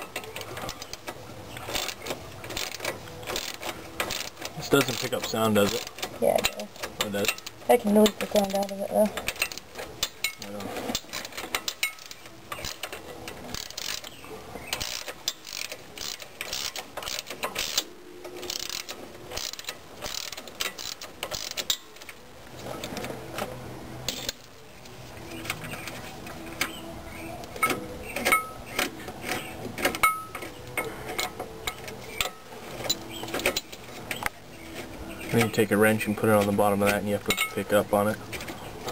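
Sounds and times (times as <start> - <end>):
ratchet wrench clicking: 11.0 - 14.1, 14.8 - 21.9.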